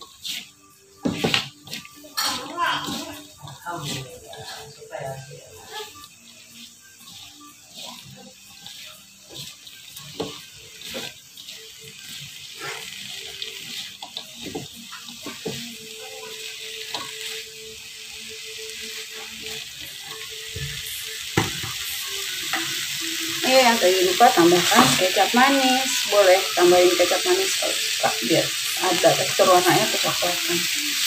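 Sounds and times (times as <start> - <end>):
food sizzling in a wok: 0.0 - 31.0
spatula knocking and scraping pan: 1.0 - 6.1, 7.0 - 12.8, 13.6 - 15.7, 20.5 - 21.8, 24.5 - 25.5.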